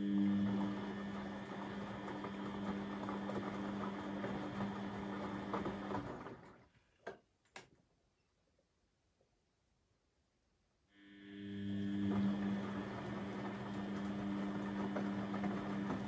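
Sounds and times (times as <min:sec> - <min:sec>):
washing machine humming and ticking: 0:00.0 - 0:06.7, 0:11.1 - 0:16.0.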